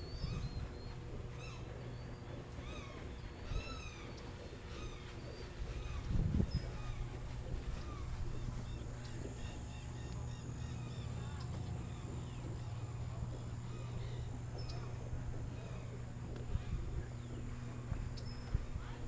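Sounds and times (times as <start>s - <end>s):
birds chirping: 3.8s - 19.0s.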